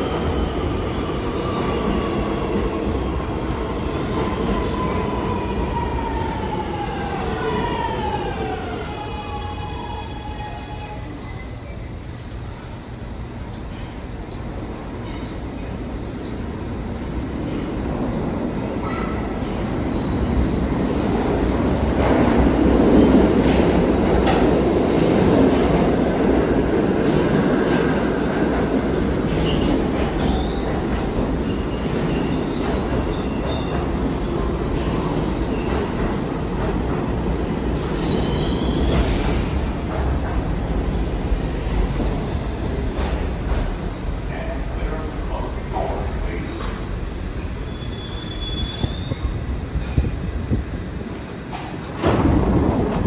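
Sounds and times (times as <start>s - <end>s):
subway train rumbling: 0.0s - 53.0s
high wheel squeal: 37.8s - 39.1s, 47.1s - 49.4s.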